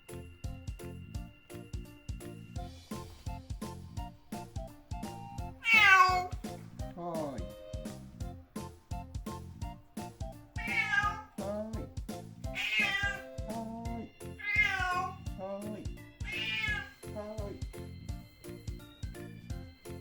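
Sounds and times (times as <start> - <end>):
background music: 0.0 - 20.0
cat meowing: 5.6 - 6.4, 10.6 - 11.4, 12.5 - 13.3, 14.4 - 15.2, 16.2 - 17.0.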